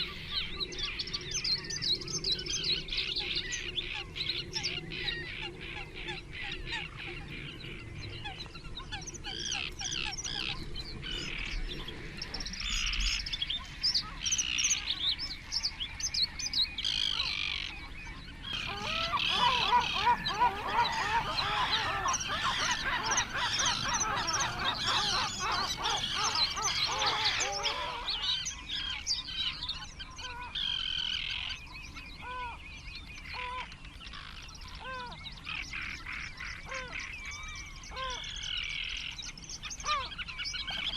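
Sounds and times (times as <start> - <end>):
wetland birds calling: 11.2 - 40.9.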